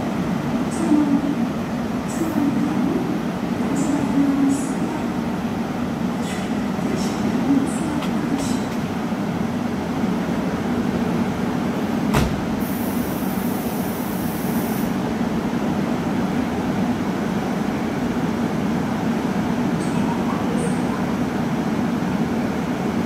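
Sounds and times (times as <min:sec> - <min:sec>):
train doors closing clunk: 0:08.0 - 0:09.0, 0:12.0 - 0:12.9.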